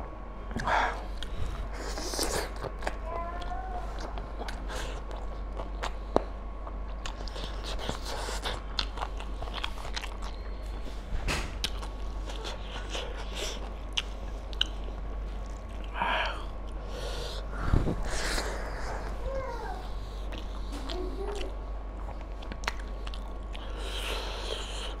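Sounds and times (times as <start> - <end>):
person chewing with mouth clicks: 0.5 - 10.9, 11.6 - 17.4, 20.0 - 25.0.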